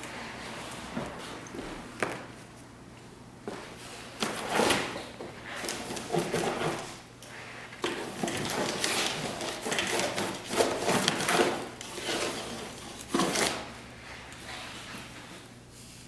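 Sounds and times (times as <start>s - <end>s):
objects scraping and knocking: 4.2s - 15.4s.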